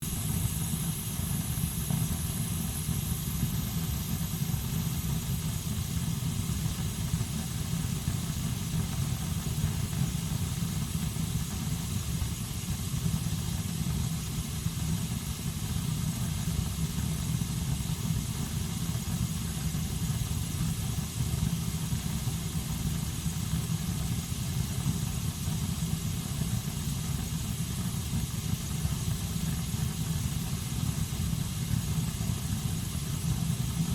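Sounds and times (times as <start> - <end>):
heating system low rumble: 0.0 - 33.9.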